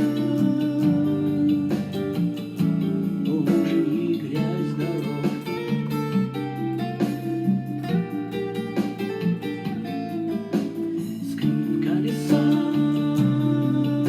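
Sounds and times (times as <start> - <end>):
plucked and strummed guitar: 0.0 - 14.0.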